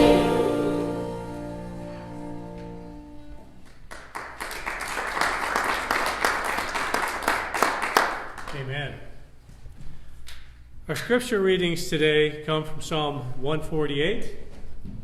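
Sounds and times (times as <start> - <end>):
held final chord of song: 0.0 - 3.5
congregation applauding: 3.5 - 8.7.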